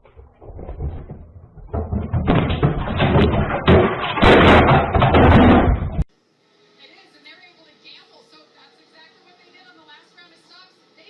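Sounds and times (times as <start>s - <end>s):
jumbled thumping and knocking: 0.0s - 6.1s.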